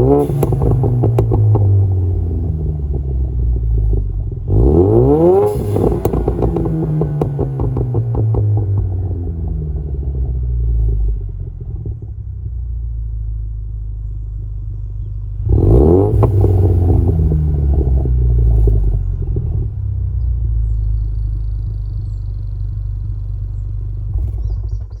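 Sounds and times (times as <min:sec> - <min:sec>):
car engine rumbling and revving: 0:00.0 - 0:25.0.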